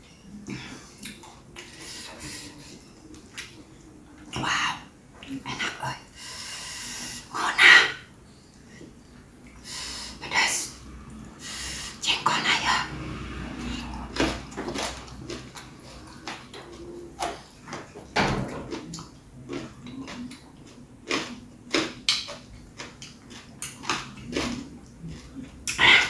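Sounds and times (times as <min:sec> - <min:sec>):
wet chewing and lip-smacking: 0:13.9 - 0:18.0, 0:18.7 - 0:26.0.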